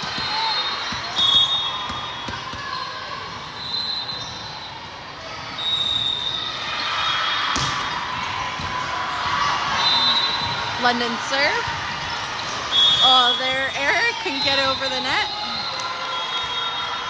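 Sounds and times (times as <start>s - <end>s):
balls hit and bouncing: 0.0s - 2.8s, 7.5s - 9.4s
crowd and hall din: 0.0s - 17.0s.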